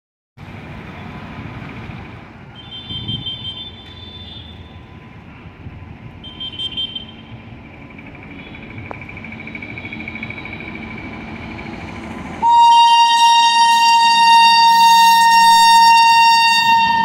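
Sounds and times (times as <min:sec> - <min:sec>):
locomotive rumbling on track: 0:00.4 - 0:17.0
high shrill horn tone: 0:12.4 - 0:17.0.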